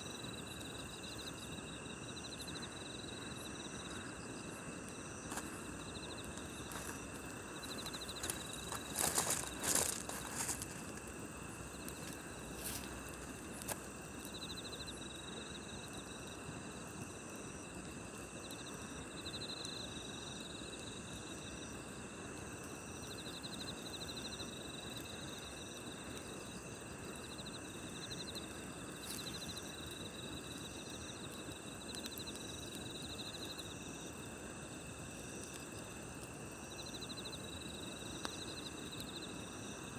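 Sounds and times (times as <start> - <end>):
crickets trilling: 0.0 - 39.9
pulsed insect chirps: 0.8 - 15.7
campfire crackling and popping: 3.3 - 19.0, 24.8 - 39.5.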